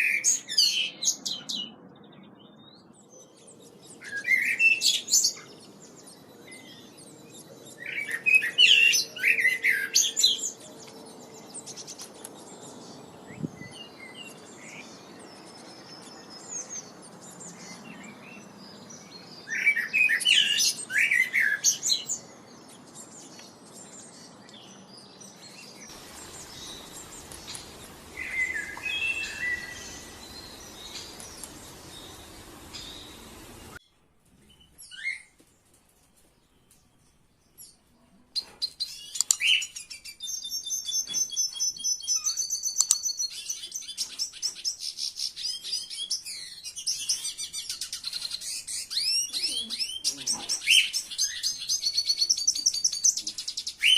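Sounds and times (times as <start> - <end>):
songbirds chirping: 0.0 - 53.9
background hiss: 25.9 - 33.8.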